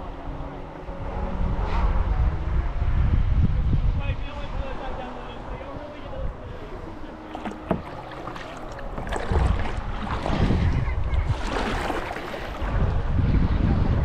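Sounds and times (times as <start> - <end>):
wind buffeting microphone: 0.0 - 14.0
water rushing and splashing: 6.5 - 13.1.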